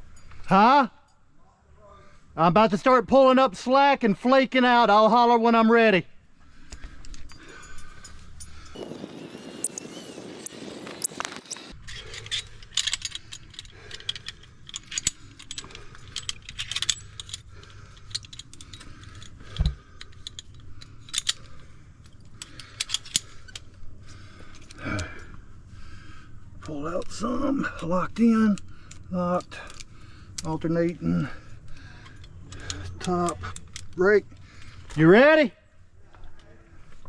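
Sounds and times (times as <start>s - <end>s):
carabiners clinking: 6.6s - 25.5s, 26.6s - 35.2s.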